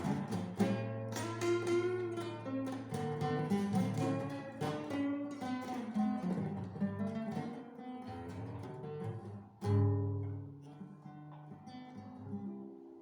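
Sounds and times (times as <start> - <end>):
acoustic guitar plucked notes: 0.0 - 13.0.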